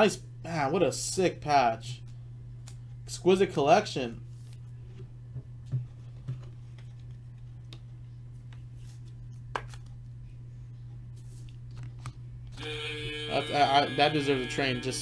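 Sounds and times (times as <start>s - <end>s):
steady low hum: 0.0s - 15.0s
handling trading cards: 6.4s - 10.1s, 11.1s - 12.3s.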